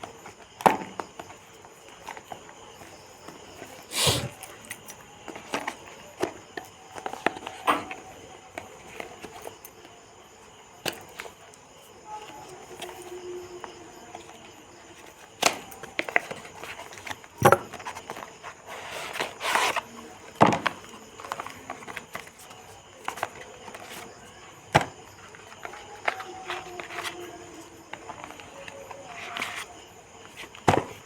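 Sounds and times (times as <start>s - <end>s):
box clicks and knocks: 15.4s - 18.3s, 19.2s - 22.0s, 24.7s - 25.0s, 30.5s - 31.0s
packaging rustle: 25.2s - 30.9s.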